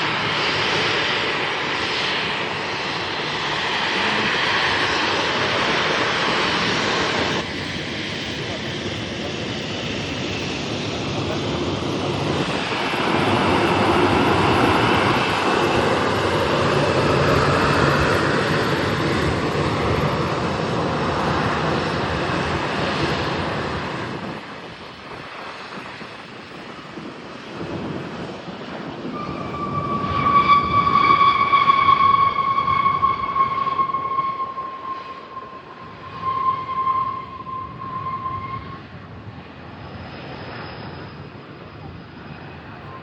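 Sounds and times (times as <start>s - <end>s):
jet airliner passing: 0.0s - 43.0s
high whine: 28.9s - 39.0s.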